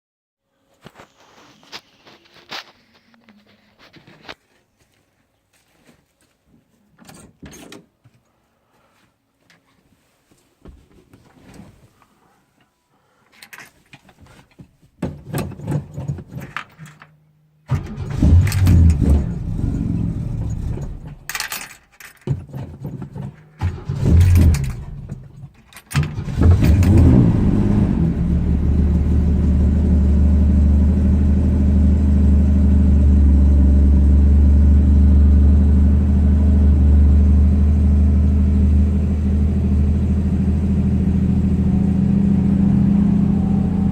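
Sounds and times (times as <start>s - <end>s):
car engine cranking and idling: 17.7s - 43.9s
keys jangling: 20.8s - 23.4s, 24.2s - 26.0s.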